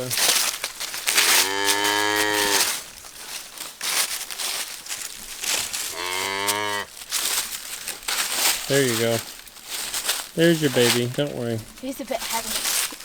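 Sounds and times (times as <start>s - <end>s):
straw rustling: 0.0s - 13.0s
cow mooing: 1.3s - 2.7s, 5.9s - 6.9s.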